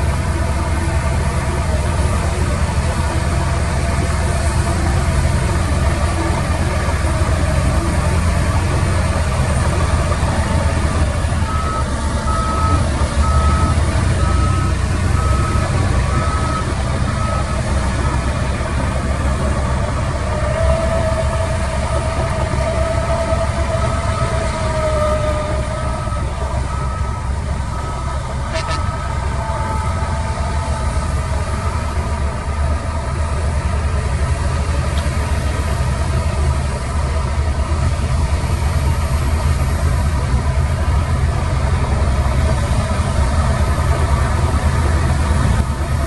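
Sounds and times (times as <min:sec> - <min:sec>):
diesel construction vehicle running: 0:00.0 - 0:46.0
steady whine: 0:00.0 - 0:46.0
reversing alarm beeps: 0:11.4 - 0:18.4, 0:22.6 - 0:32.2.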